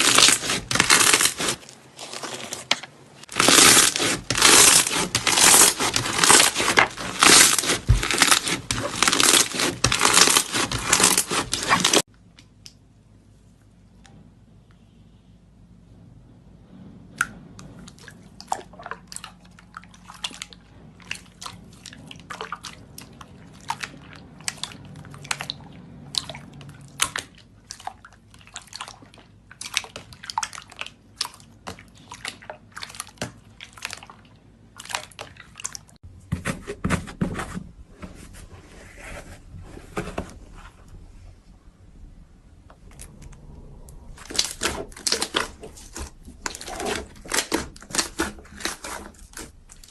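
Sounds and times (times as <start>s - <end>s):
wet crunches: 0.0s - 12.1s, 44.2s - 49.9s.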